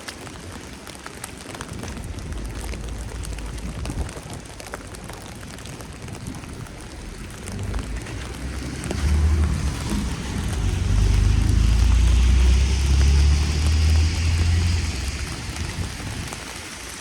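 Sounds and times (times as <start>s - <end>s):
tyres hissing on wet road: 0.0s - 17.0s
vehicle engine hum passing: 6.6s - 17.0s.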